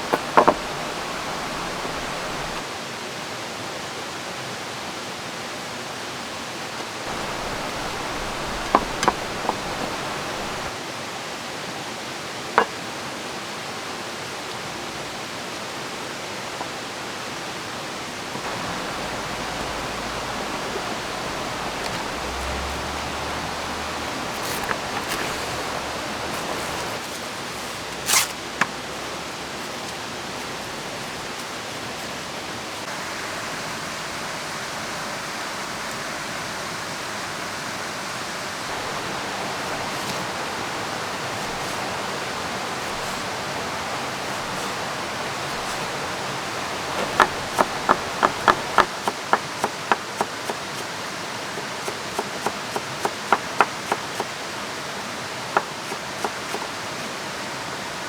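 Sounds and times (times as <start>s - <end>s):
falling rain: 0.0s - 2.6s, 7.0s - 10.8s, 18.3s - 55.8s
flowing river: 0.0s - 3.1s, 6.9s - 58.0s.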